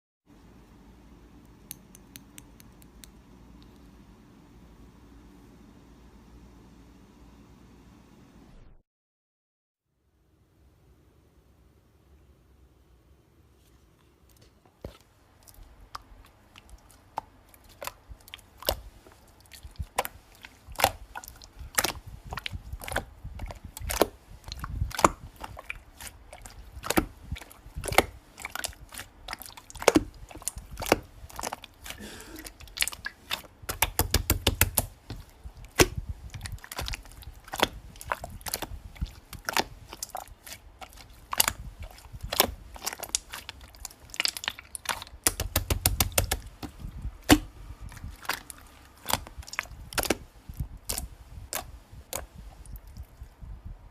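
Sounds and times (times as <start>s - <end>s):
slime clicking and popping: 20.8s - 31.7s, 32.6s - 47.5s, 48.2s - 50.2s.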